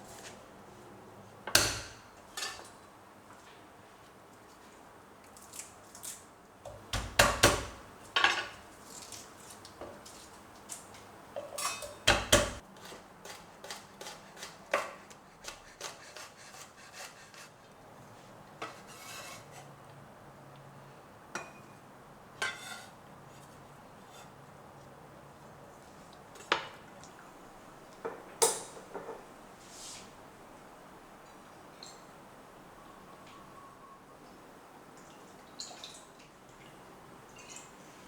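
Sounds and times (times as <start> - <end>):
utensils and containers clinking: 10.7 - 12.6.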